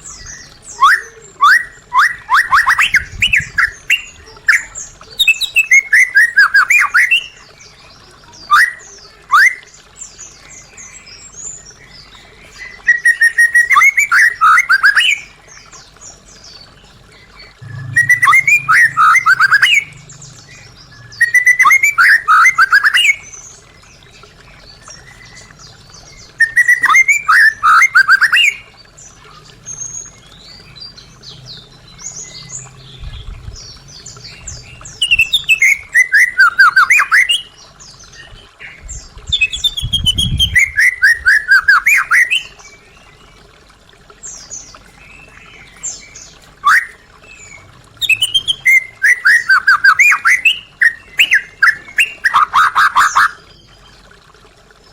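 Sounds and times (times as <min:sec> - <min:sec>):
low thumps: 0:17.6 - 0:21.2
bird singing whistled notes: 0:17.6 - 0:23.4, 0:26.3 - 0:28.6, 0:34.5 - 0:37.5, 0:39.4 - 0:42.6, 0:48.0 - 0:53.3.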